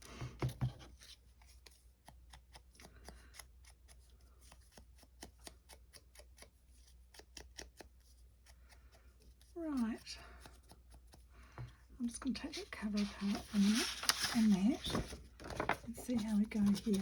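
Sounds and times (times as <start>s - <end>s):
paper and card rustling: 12.0s - 17.0s.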